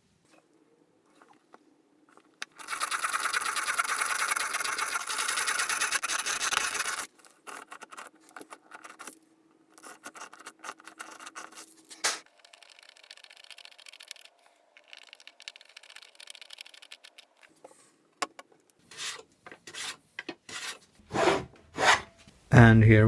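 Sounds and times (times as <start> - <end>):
scratchy strokes: 1.1 - 17.8, 18.8 - 22.1
tool scraping across wood: 1.2 - 12.9, 17.4 - 22.2.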